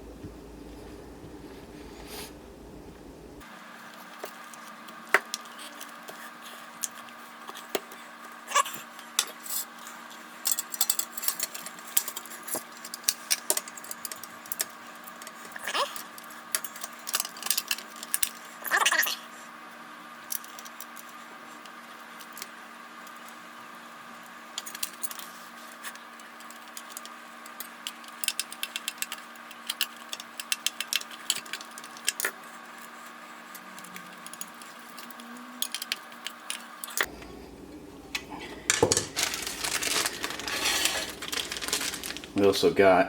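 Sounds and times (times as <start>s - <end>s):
steady electrical hum: 0.0s - 18.7s, 19.3s - 43.0s
metal clatter: 37.1s - 42.4s.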